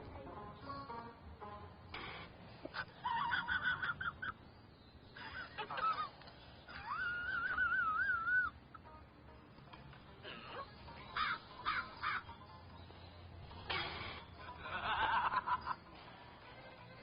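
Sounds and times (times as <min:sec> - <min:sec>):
animal calling in wavering cries: 0:06.7 - 0:08.6, 0:11.0 - 0:12.3.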